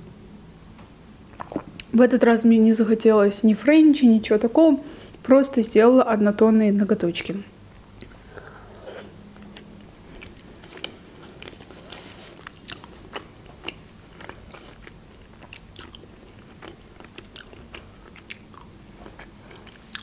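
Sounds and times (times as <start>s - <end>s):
mouth smacks and clicks: 1.3s - 1.9s, 7.9s - 8.5s
wet chewing sounds: 1.3s - 1.9s, 7.9s - 20.0s.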